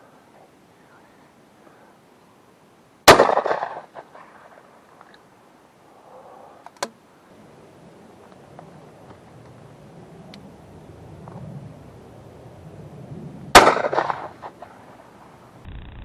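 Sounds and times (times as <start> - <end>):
shotgun shot: 3.1 - 4.0, 13.6 - 14.6.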